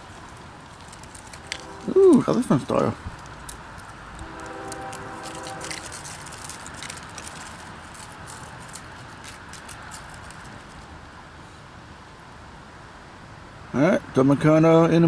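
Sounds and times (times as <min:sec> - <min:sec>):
sharp clicks of wheels on rails: 0:00.0 - 0:11.0
freight train rumbling: 0:01.1 - 0:10.9
faint multi-note tone: 0:01.5 - 0:02.4.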